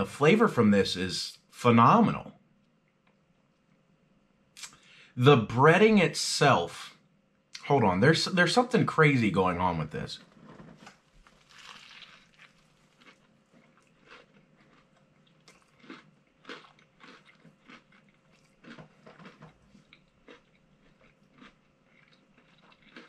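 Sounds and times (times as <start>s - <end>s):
crunchy chewing: 10.2s - 23.0s
person biting into sandwich: 10.9s - 23.0s.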